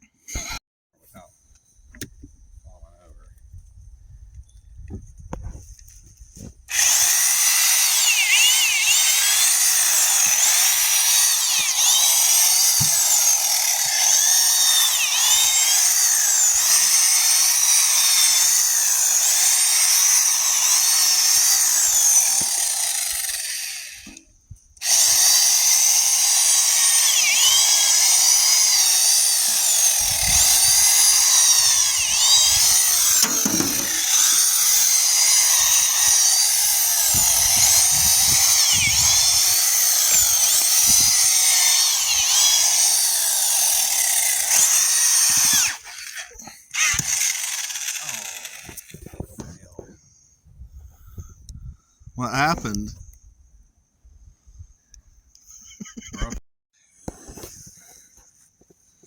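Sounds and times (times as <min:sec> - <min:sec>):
hammer drill auger into compost: 0:06.4 - 0:49.6.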